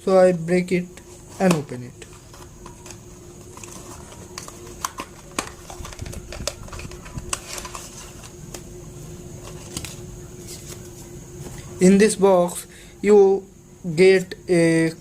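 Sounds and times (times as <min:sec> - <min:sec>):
faint steady hum: 0:00.0 - 0:15.0
cardboard and plastic rustling: 0:01.1 - 0:11.7
sharp clicks of packaging: 0:02.3 - 0:08.6.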